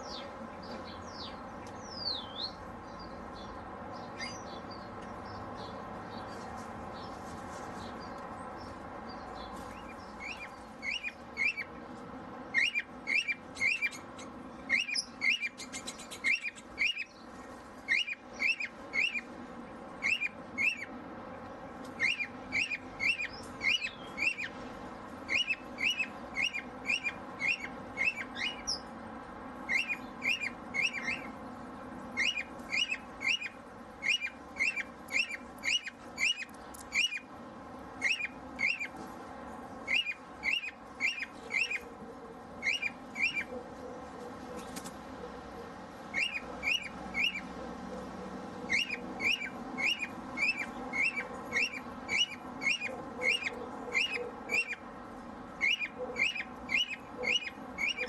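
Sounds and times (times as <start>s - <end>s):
bird chirping: 0.0s - 7.2s, 7.8s - 11.8s, 12.5s - 19.3s, 20.0s - 20.9s, 22.0s - 24.6s, 25.3s - 28.9s, 29.7s - 31.4s, 32.2s - 37.3s, 38.0s - 39.0s, 39.8s - 41.9s, 42.6s - 43.6s, 46.1s - 47.5s, 48.7s - 54.9s, 55.6s - 58.0s.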